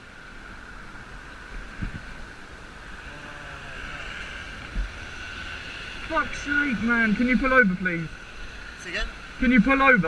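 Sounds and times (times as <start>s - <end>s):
motorcycle riding noise: 0.0s - 10.0s.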